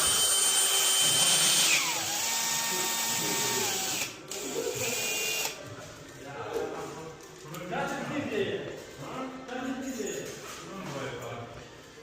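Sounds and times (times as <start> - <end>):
electric drill whining: 0.0 - 5.6.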